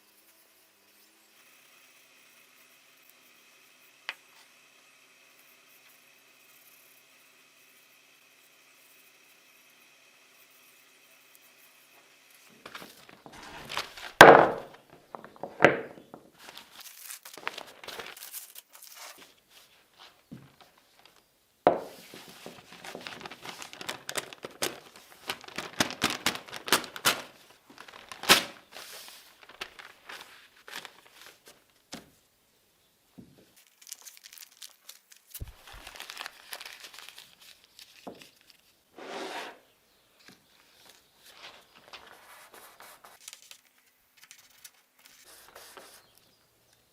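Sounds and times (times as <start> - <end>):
newspaper crinkling and rustling: 12.5 - 32.2, 33.5 - 38.8, 40.2 - 46.2.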